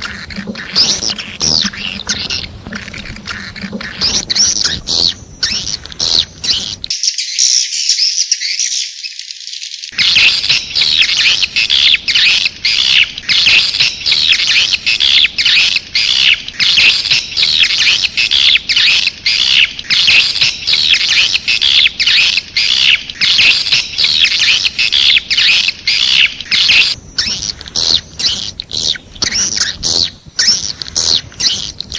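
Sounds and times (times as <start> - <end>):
swiftlet chirping twitters: 0.0 - 9.0, 22.0 - 31.9.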